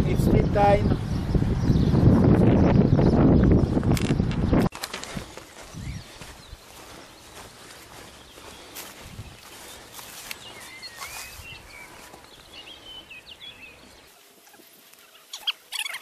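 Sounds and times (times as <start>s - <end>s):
footsteps on grass: 4.6s - 15.6s
small bird chirping: 5.4s - 16.0s.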